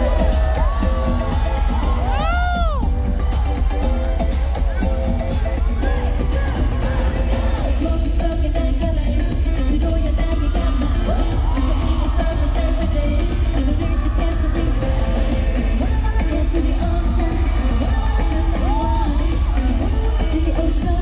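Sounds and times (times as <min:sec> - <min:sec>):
girl group singing: 0:05.7 - 0:21.0.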